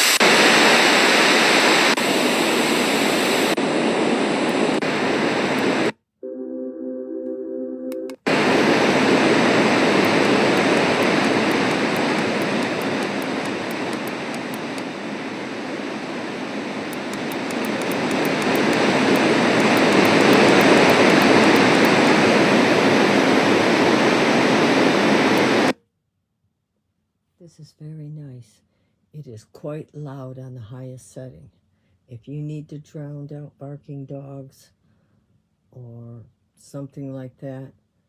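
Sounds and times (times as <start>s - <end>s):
white noise rushing: 0.0s - 5.9s, 8.3s - 25.7s
faint high ticks: 10.0s - 14.9s, 16.9s - 22.2s.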